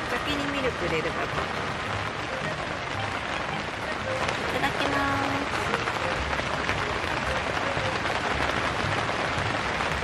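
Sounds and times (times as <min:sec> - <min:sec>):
heavy rain on a tent: 0:00.0 - 0:10.0.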